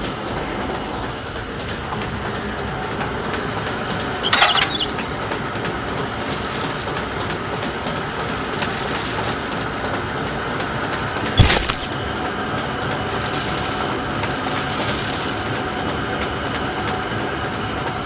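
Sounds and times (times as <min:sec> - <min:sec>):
brief squeak: 0:04.2 - 0:05.0
flour mill grinding: 0:05.5 - 0:11.9, 0:12.7 - 0:16.4.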